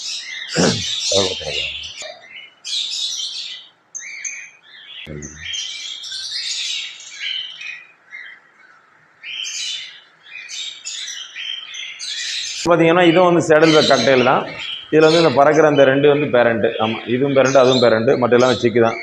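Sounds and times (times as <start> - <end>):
cockatiels chirping and squawking: 9.2 - 15.9, 16.6 - 19.0.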